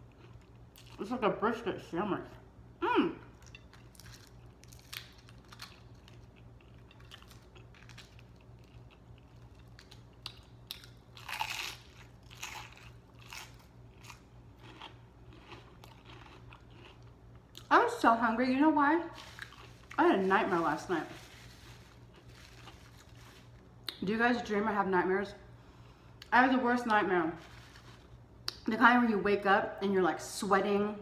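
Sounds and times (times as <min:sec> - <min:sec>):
chewing crunchy food: 0:00.0 - 0:01.1, 0:03.3 - 0:17.7, 0:19.2 - 0:24.0
faint low hum: 0:00.0 - 0:31.0.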